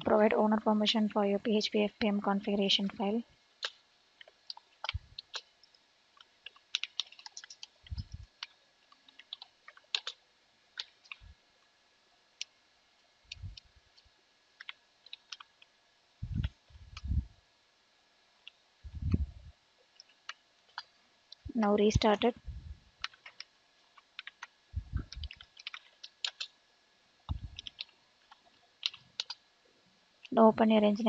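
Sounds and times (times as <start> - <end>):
keyboard typing: 3.6 - 10.2, 10.8 - 11.3, 14.6 - 15.7, 23.0 - 26.6, 27.3 - 29.4
dull low thuds: 16.2 - 17.3, 18.9 - 19.5, 24.8 - 25.3.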